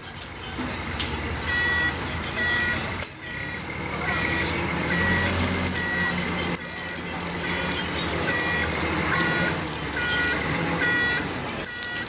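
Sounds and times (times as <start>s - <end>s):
diesel engine running: 0.3s - 12.0s
reversing alarm beeping: 1.2s - 12.0s
sharp clicks: 3.4s - 12.0s.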